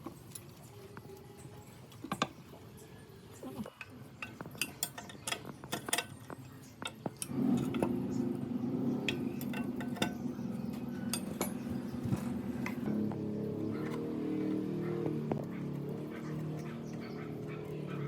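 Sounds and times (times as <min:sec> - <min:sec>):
metallic clinks and taps: 0:03.8 - 0:08.0, 0:09.1 - 0:12.9.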